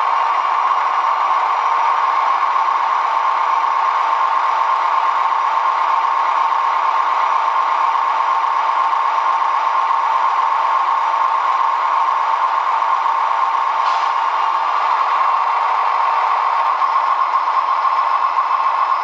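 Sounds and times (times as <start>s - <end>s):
model diesel engine sound: 0.0s - 19.0s.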